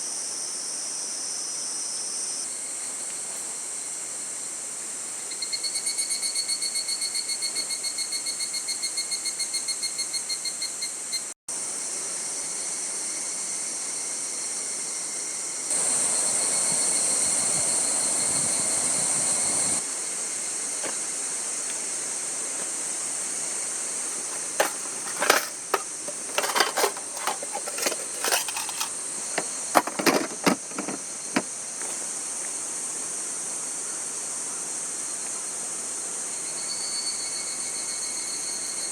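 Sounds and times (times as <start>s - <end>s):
insects chirring: 5.2s - 38.9s
sharp clicks and knocks: 24.1s - 31.5s.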